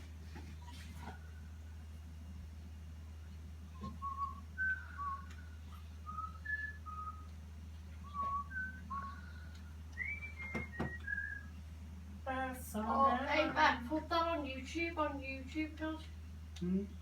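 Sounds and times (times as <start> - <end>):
constant low hum: 0.0 - 17.0
person whistling a slow tune: 3.8 - 7.3, 8.0 - 11.6
sharp knocks: 10.4 - 11.0.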